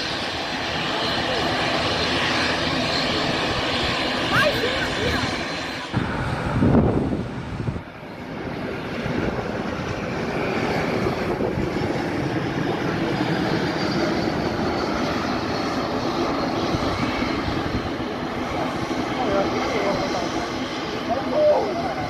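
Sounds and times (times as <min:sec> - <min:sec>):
airliner engines running: 0:00.0 - 0:22.0.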